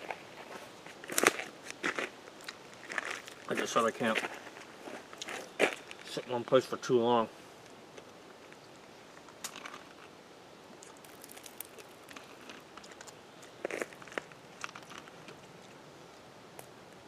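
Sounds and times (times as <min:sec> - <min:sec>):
person chewing fruit: 0:10.8 - 0:15.8.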